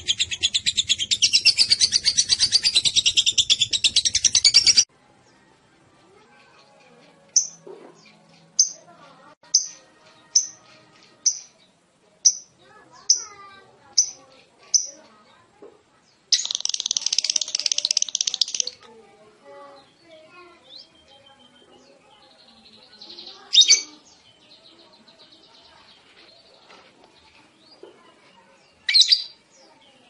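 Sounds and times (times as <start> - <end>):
lovebird chirping: 0.0 - 4.9, 7.4 - 8.8, 11.2 - 15.0, 16.3 - 18.8, 20.7 - 24.6
lovebird chattering trill: 16.3 - 18.8, 23.5 - 23.9.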